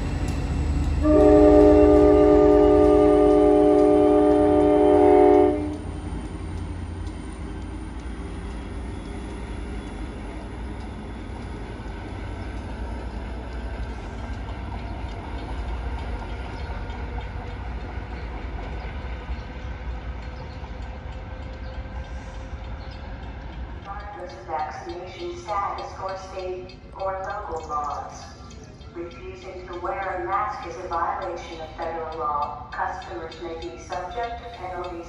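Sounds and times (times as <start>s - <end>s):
diesel train rumbling: 0.0s - 35.0s
locomotive horn: 1.0s - 5.9s.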